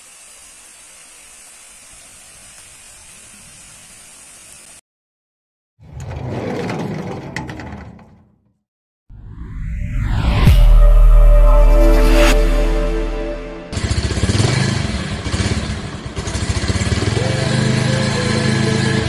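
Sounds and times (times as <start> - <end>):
steady hiss: 0.0 - 4.8.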